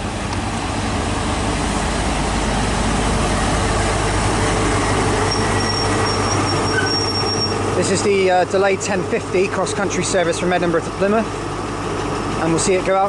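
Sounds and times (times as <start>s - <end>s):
diesel train engine droning: 0.0s - 13.0s
high brake squeal: 5.2s - 7.6s.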